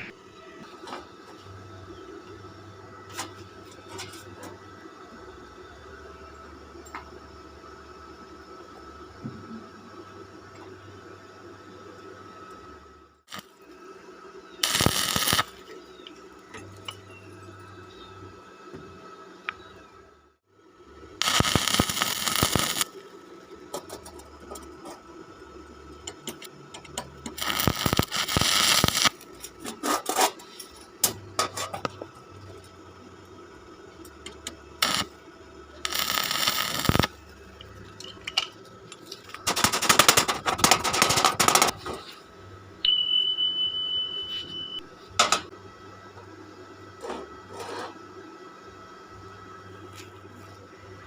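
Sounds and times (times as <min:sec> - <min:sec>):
arc welding crackle: 0:13.2 - 0:13.8, 0:14.6 - 0:17.0, 0:21.2 - 0:23.1, 0:23.7 - 0:42.0
clicks and scrapes: 0:28.7 - 0:31.9
steady high beep: 0:42.8 - 0:44.9.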